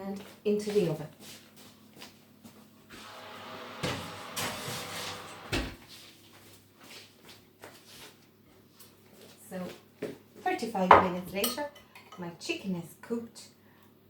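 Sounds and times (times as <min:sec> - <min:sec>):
oven door opening: 0:02.9 - 0:05.8
oven door shutting thump: 0:03.0 - 0:05.8.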